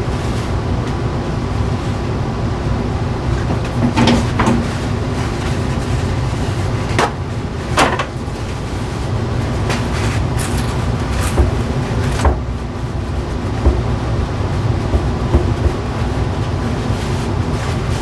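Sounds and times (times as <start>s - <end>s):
steady low rumble: 0.0s - 18.0s
sharp knocks and clatters: 3.4s - 4.8s, 7.8s - 8.2s, 9.7s - 12.6s, 13.3s - 14.1s, 14.8s - 15.9s.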